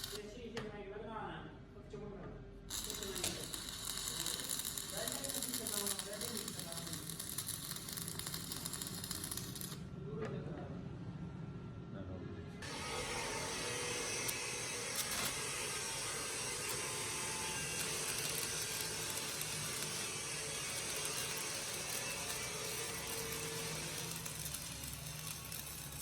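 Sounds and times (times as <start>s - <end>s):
metalworking tool on steel: 2.7s - 9.8s, 12.6s - 26.0s.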